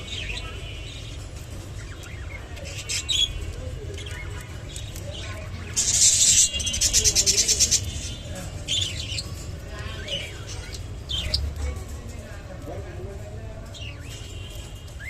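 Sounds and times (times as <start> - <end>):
budgerigar chirping and chattering: 0.0 - 11.6.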